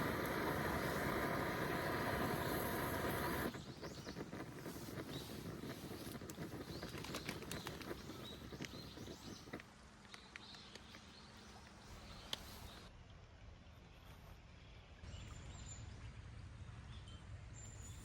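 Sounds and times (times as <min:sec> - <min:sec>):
low rumbling noise: 0:00.0 - 0:04.3
small clicks: 0:04.1 - 0:12.5.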